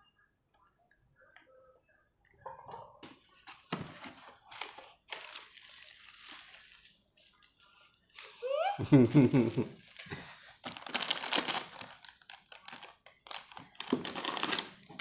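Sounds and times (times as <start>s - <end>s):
packaging crinkling and rustling: 3.0s - 8.6s, 9.7s - 15.0s.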